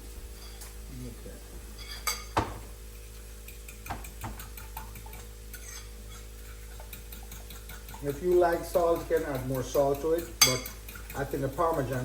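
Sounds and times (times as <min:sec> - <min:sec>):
kitchen utensils and dishes knocking: 0:01.9 - 0:02.7.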